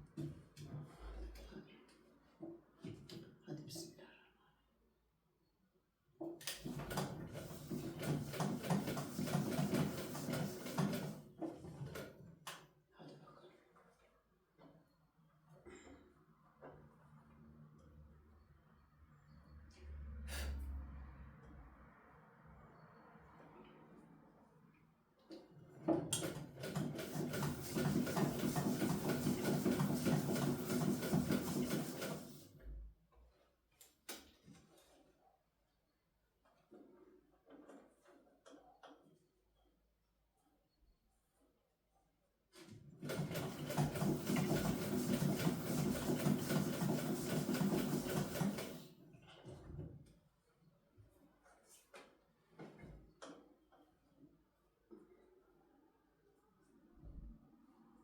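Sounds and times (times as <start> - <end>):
sewing machine stitching: 6.4 - 12.3, 25.7 - 32.6, 42.6 - 49.0.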